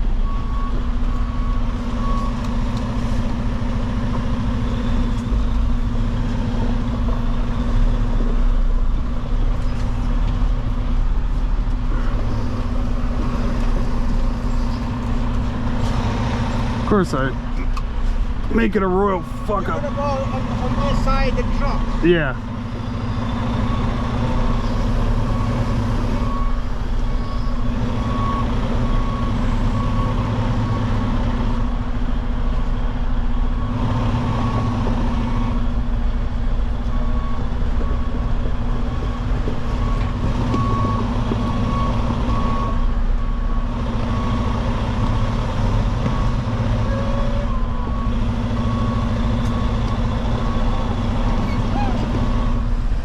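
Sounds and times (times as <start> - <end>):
truck diesel engine running: 0.0 - 53.0
backup alarm beeping: 18.6 - 30.9.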